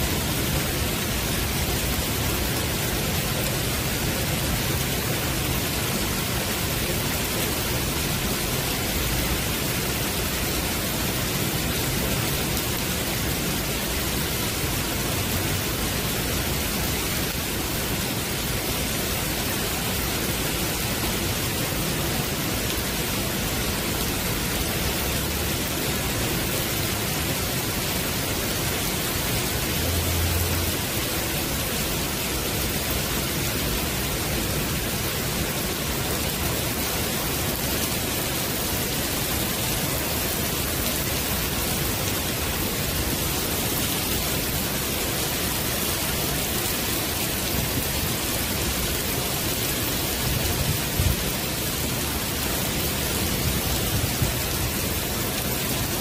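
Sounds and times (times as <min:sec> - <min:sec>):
heavy rain on a wooden deck: 0:00.0 - 0:56.0.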